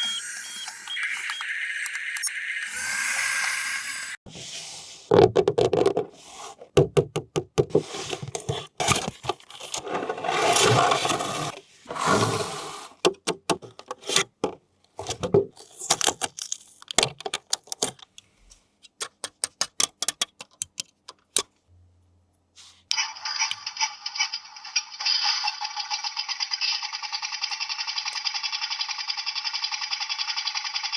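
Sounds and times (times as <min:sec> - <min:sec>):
plastic and cardboard scraping: 0:07.7 - 0:14.4.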